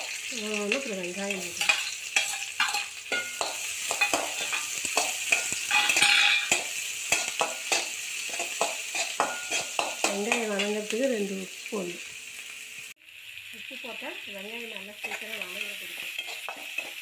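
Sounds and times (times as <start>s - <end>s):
onion frying in hot oil: 0.0s - 17.0s
spatula scraping a wok: 1.2s - 10.9s, 14.9s - 17.0s.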